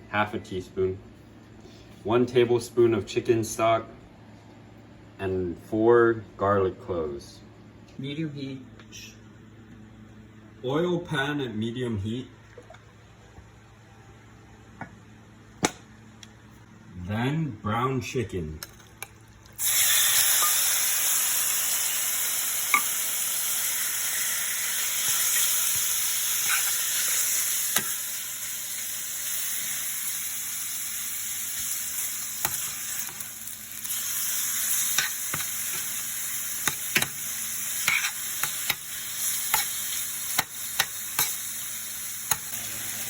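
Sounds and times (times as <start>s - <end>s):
chicken sizzling in hot oil: 19.6s - 43.0s.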